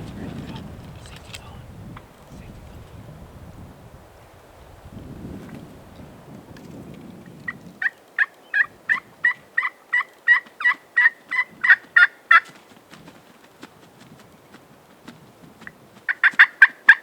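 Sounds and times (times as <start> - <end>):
turkey yelps: 16.1 - 17.0.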